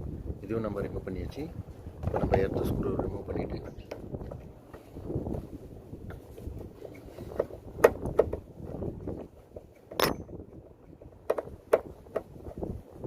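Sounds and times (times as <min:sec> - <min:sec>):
screwdriver clicks and knocks: 0:11.2 - 0:12.3.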